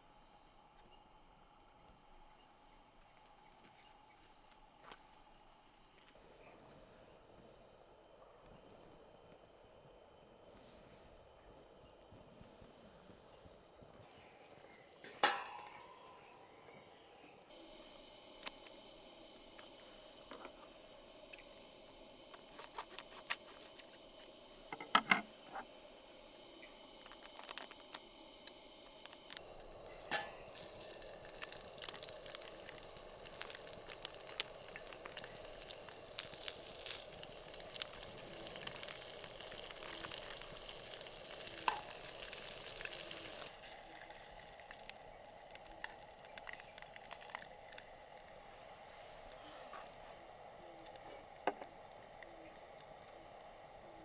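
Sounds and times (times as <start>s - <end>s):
meat sizzling in a pan: 29.5s - 48.4s.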